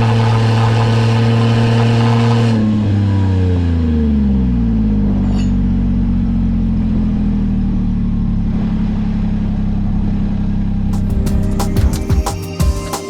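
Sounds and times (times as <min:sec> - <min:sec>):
music: 0:10.9 - 0:13.0.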